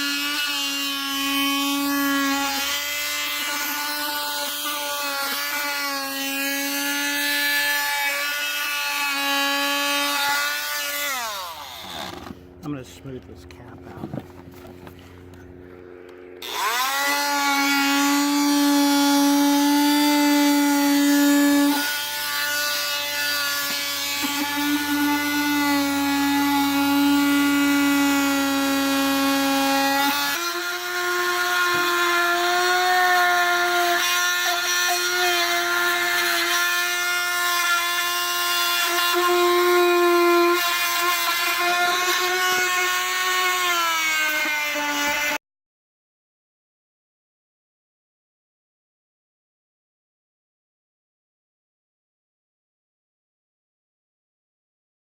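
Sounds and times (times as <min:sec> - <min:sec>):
power tool motor whine: 0:00.0 - 0:12.6, 0:14.0 - 0:45.4.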